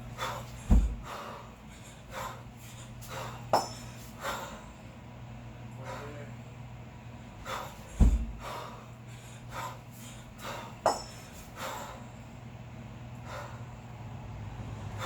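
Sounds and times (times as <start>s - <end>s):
person breathing hard in huffs: 0.0s - 5.0s, 5.8s - 6.4s, 7.3s - 12.4s, 13.1s - 15.0s
heavy thud: 0.6s - 1.1s, 7.9s - 8.5s.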